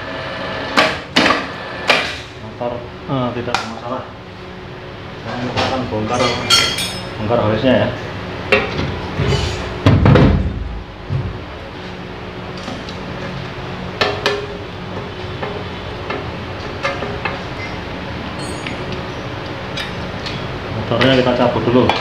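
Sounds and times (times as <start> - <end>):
steady low hum: 0.0 - 22.0
heavy thump: 9.2 - 11.4.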